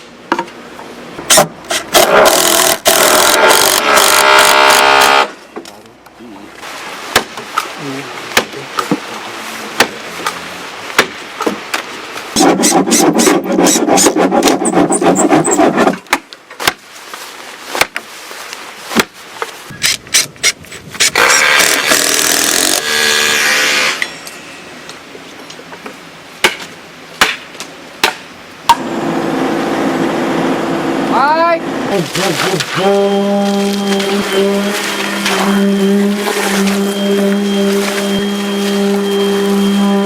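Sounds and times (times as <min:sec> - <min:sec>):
rasping sawing noise: 0:12.4 - 0:16.0, 0:28.8 - 0:40.0.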